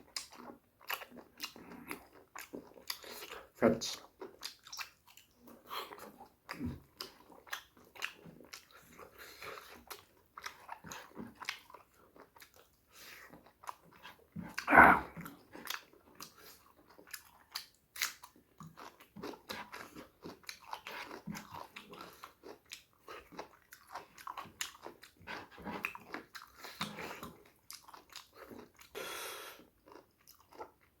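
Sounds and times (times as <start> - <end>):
close chewing and mouth smacks: 0.0 - 31.0
breathy noise: 14.7 - 15.2.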